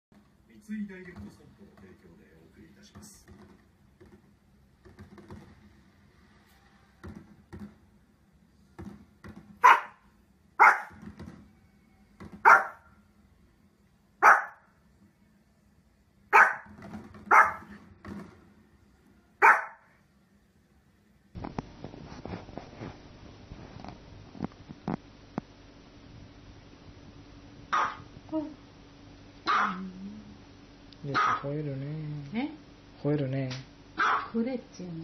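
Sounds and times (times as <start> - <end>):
small dog barking: 9.6 - 11.0, 12.4 - 12.9, 14.2 - 14.7, 16.3 - 16.7, 17.3 - 17.7, 19.4 - 20.0, 27.7 - 28.1, 29.4 - 29.8, 31.1 - 31.5, 34.0 - 34.4.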